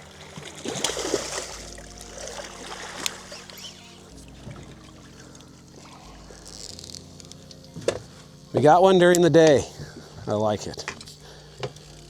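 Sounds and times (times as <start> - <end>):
water trickling and splashing: 0.0 - 8.5
low background tones: 0.0 - 12.0.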